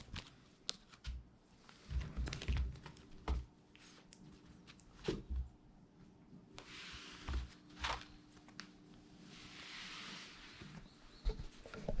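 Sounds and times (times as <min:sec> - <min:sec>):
faint steady hum: 0:00.0 - 0:12.0
soft rustling: 0:06.6 - 0:12.0.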